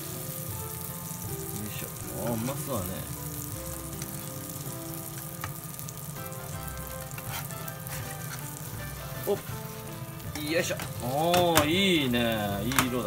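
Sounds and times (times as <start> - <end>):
patties sizzling in oil: 0.0 - 13.0
metal spatula knocking on pan: 10.3 - 11.8.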